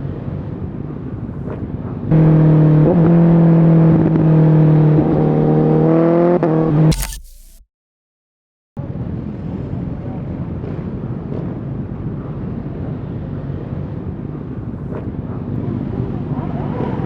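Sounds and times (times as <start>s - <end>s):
motorcycle engine revving: 2.1s - 7.6s.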